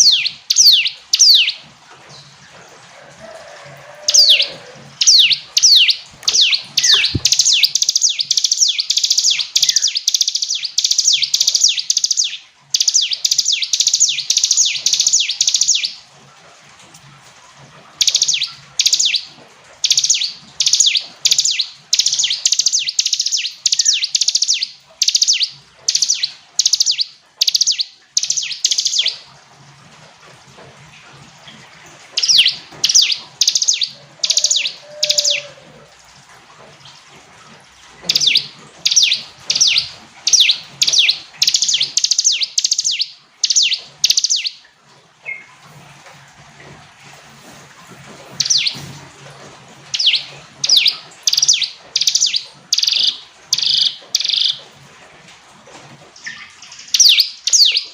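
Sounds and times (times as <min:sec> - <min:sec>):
bird chirping high notes: 0:04.2 - 0:15.3.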